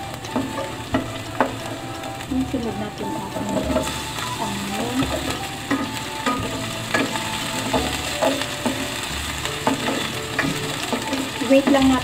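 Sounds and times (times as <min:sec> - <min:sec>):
onion sizzling in oil: 0:00.0 - 0:12.0
spatula scraping a pan: 0:05.0 - 0:12.0.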